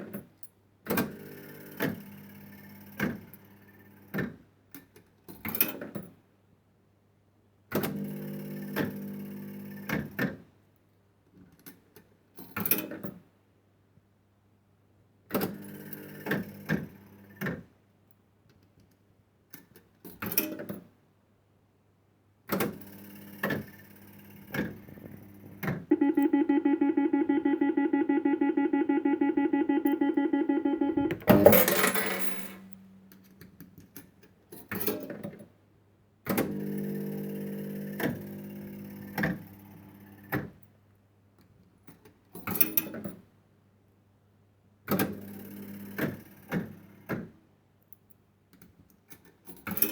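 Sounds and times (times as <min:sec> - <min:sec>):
rapid pulsing electronic tone: 0:25.9 - 0:32.4.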